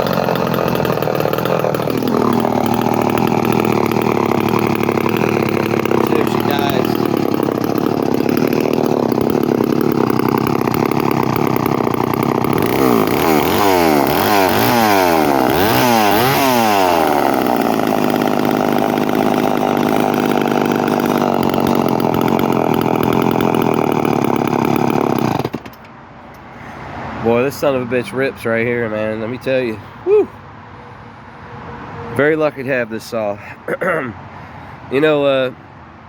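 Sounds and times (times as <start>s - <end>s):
chainsaw running with throttle blips: 0.0s - 25.8s.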